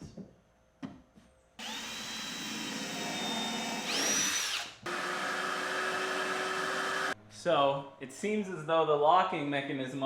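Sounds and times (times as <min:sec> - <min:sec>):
power tool motor whining: 0:01.6 - 0:07.2.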